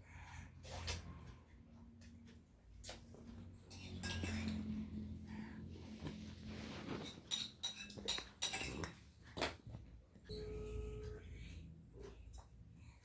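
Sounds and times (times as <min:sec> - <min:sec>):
dishware clinking: 0:03.7 - 0:05.0, 0:07.0 - 0:09.1.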